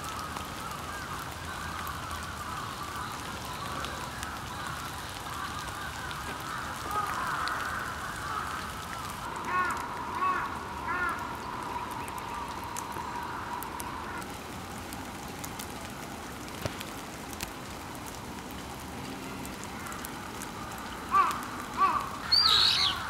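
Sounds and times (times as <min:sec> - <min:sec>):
falling sleet hiss: 0:00.0 - 0:23.0
drip-like ticks: 0:00.1 - 0:23.0
bird calling: 0:20.8 - 0:23.0.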